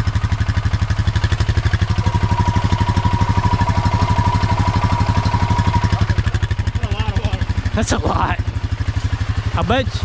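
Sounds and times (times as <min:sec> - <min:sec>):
atv engine running: 0:00.0 - 0:10.0
thin steady whine: 0:01.5 - 0:08.4.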